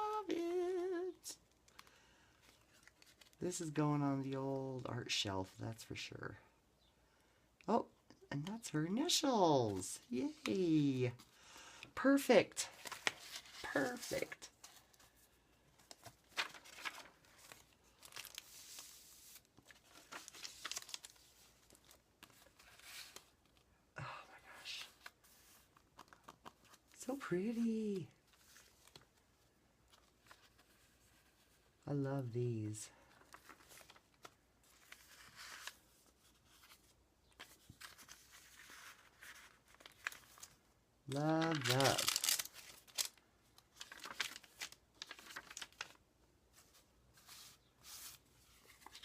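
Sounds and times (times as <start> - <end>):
paper rustling and crinkling: 1.6 - 3.4, 12.6 - 23.7, 24.8 - 31.8, 33.0 - 49.0.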